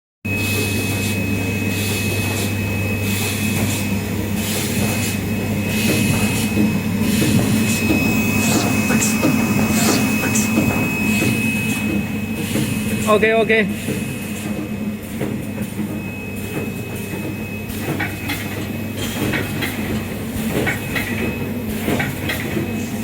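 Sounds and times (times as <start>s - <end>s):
high machine whine: 0.3s - 23.0s
machine humming: 0.3s - 23.0s
pulsing hiss: 0.5s - 14.6s.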